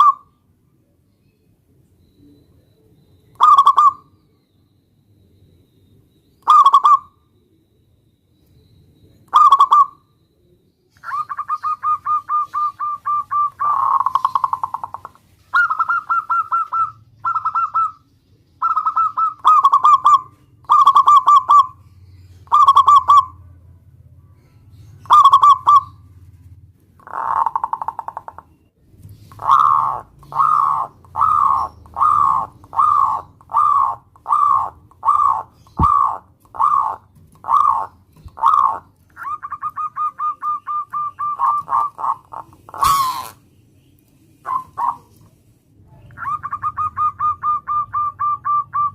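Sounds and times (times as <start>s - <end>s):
dove cooing: 3.4s - 4.1s, 6.4s - 7.1s, 9.3s - 10.0s, 11.0s - 18.0s, 18.6s - 21.8s, 22.4s - 23.4s, 25.0s - 26.0s, 27.0s - 28.4s, 29.2s - 43.4s, 44.4s - 45.2s, 45.9s - 48.9s.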